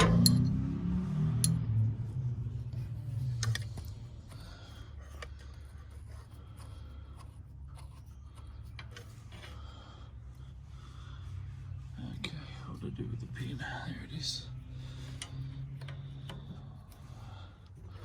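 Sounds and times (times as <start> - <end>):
low rumble: 0.0 - 4.5.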